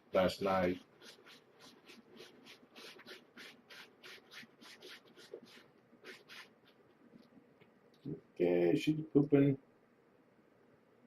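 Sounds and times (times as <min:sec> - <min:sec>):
cat scratching in litter: 0:00.5 - 0:06.8.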